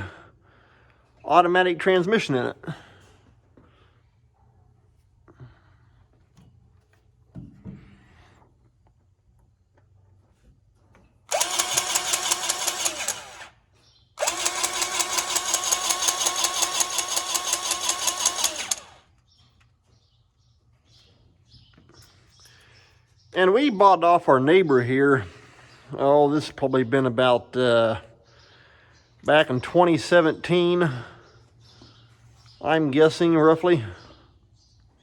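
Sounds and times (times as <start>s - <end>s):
powered grease gun whirring: 11.3s - 19.2s.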